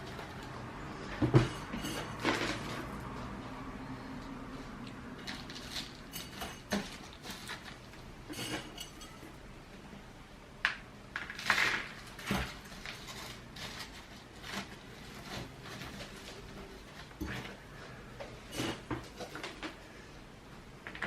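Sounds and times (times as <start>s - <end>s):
plant pot clinking and scraping: 0.0s - 3.2s, 5.2s - 9.4s, 18.5s - 19.7s
gritty potting mix rustling: 0.0s - 9.5s, 11.2s - 20.0s.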